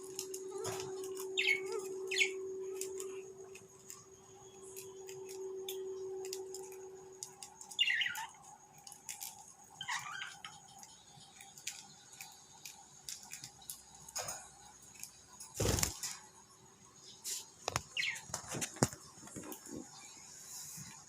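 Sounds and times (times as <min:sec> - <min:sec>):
birds clicking and scratching: 0:00.0 - 0:16.3, 0:17.2 - 0:20.0
bird chirp: 0:00.1 - 0:03.3, 0:07.4 - 0:08.5, 0:09.2 - 0:14.1, 0:15.2 - 0:18.4
wings fluttering: 0:15.4 - 0:16.2.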